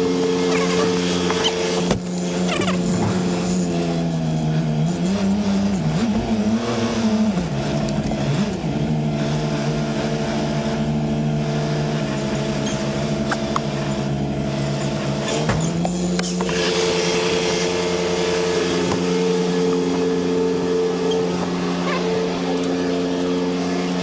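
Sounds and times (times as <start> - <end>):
diesel truck engine running: 0.0 - 24.0.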